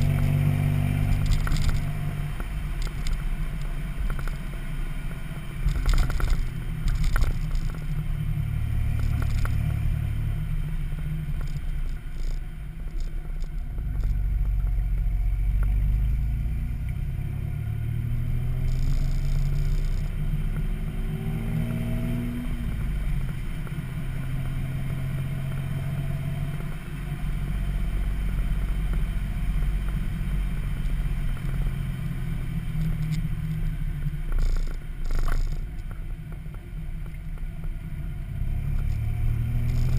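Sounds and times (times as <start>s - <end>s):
engine exhaust revving: 0.0s - 3.2s, 5.1s - 26.7s, 38.1s - 39.9s.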